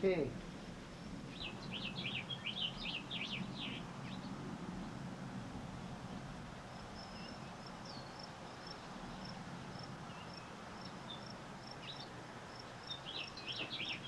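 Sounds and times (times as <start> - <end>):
steady background hiss: 0.0 - 14.0
cricket chirping: 0.9 - 3.9, 6.1 - 14.0
bird chirps: 1.3 - 4.4, 7.0 - 9.3, 10.1 - 14.0.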